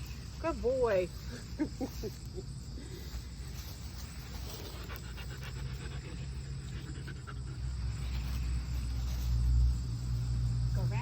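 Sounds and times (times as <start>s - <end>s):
dog panting: 4.5s - 8.2s.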